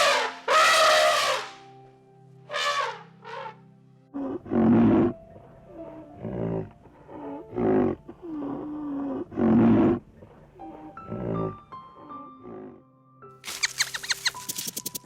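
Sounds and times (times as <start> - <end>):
big cat roaring: 4.1 - 12.8.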